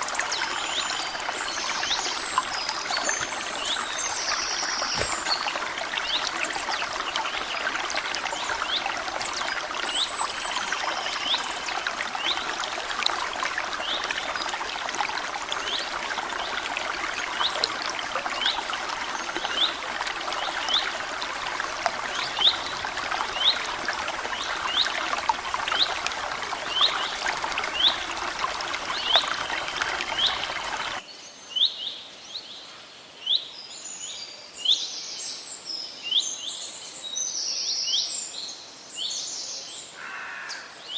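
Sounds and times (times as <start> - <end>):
water flowing and trickling: 0.0 - 31.0.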